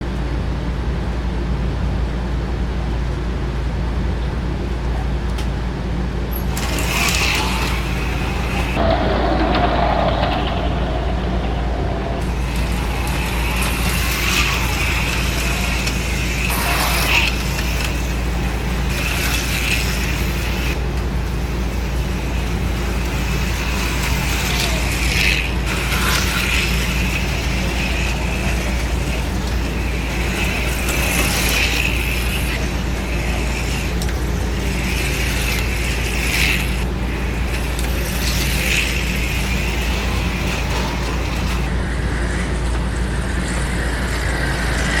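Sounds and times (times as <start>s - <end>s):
steady low hum: 6.0s - 34.6s.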